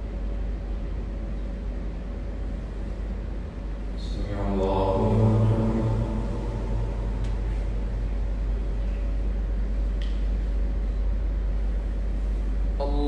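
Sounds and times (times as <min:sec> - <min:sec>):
steady low hum: 0:00.0 - 0:13.0
person reciting: 0:04.0 - 0:08.5, 0:12.8 - 0:13.0.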